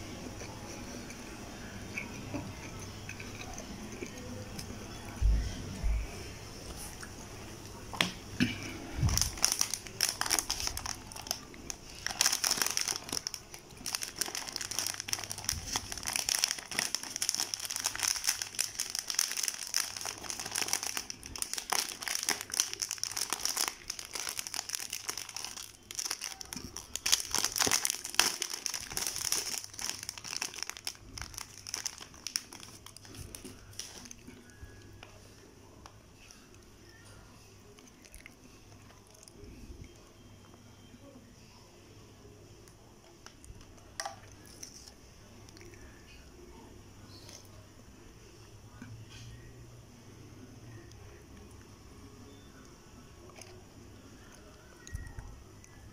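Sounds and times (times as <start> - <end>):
food wrapper crinkling: 9.0 - 34.6.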